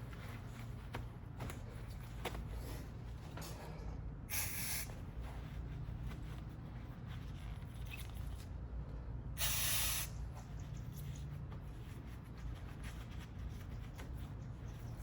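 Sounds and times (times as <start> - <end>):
aerosol can spraying: 4.3 - 4.9, 9.4 - 10.1.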